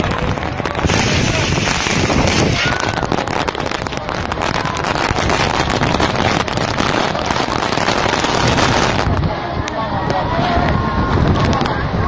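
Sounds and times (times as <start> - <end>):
heavy rain pelting down: 0.0 - 9.3
wind buffeting microphone: 0.0 - 12.0.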